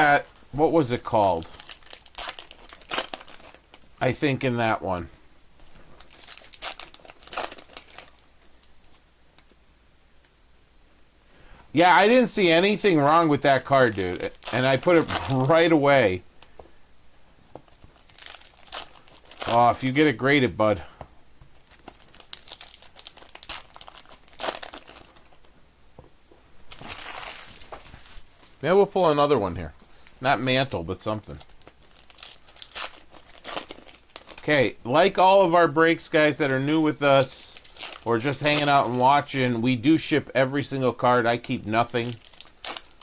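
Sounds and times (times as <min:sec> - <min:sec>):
plastic wrapper crinkling and tearing: 0:00.0 - 0:04.0, 0:05.7 - 0:09.5, 0:13.0 - 0:16.5, 0:17.6 - 0:20.4, 0:21.6 - 0:25.5, 0:26.7 - 0:28.7, 0:29.8 - 0:40.0, 0:41.0 - 0:43.0
faint handling noises: 0:24.7 - 0:28.8.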